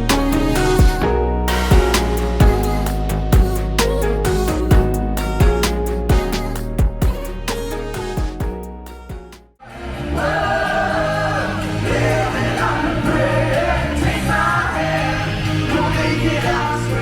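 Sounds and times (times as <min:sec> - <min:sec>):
steady bass line: 0:00.0 - 0:09.6
song with choir-like vocals: 0:00.0 - 0:17.0.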